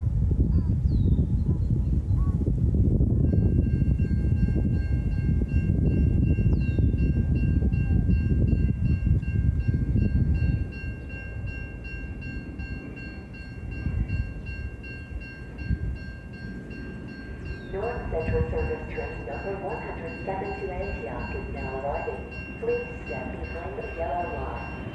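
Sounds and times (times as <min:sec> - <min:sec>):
train rumbling: 0:02.2 - 0:24.9
steady high-pitched tones: 0:10.5 - 0:24.9.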